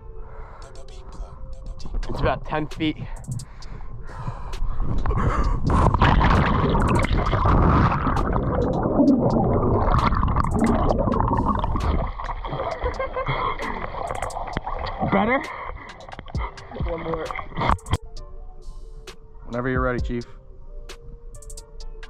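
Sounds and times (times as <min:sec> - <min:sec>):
water gurgling and sloshing: 0:01.9 - 0:18.1.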